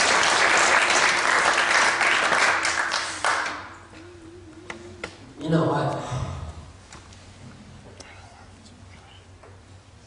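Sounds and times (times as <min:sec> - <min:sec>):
congregation applauding: 0:00.0 - 0:03.8.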